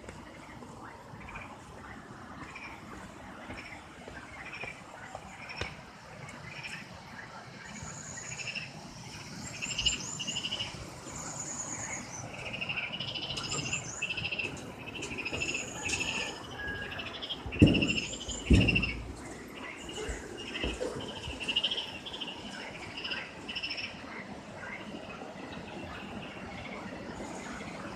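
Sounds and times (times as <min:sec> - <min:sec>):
small animals chirping and trilling: 0:06.4 - 0:27.9.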